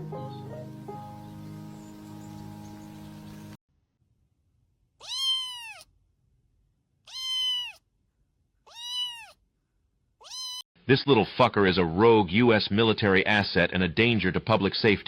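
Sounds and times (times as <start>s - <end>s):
cat meowing: 5.0s - 5.9s, 7.0s - 7.9s, 8.6s - 9.4s, 10.2s - 10.6s.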